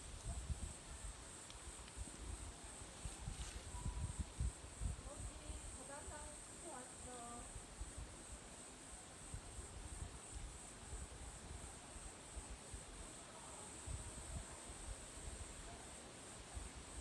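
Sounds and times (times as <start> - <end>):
wind rumbling on microphone: 0.0 - 6.4.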